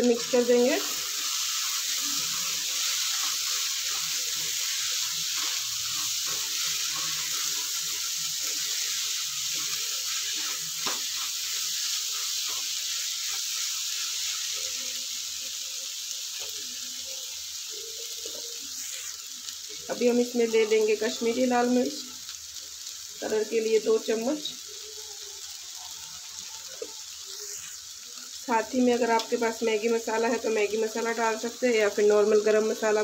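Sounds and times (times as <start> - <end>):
masala sizzling in a pan: 0.0 - 33.0
spatula scraping and tapping pan: 3.0 - 11.4.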